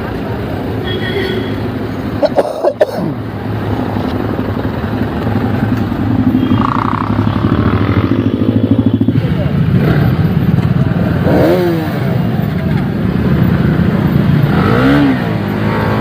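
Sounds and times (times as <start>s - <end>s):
motorcycle engine accelerating: 3.7s - 16.0s.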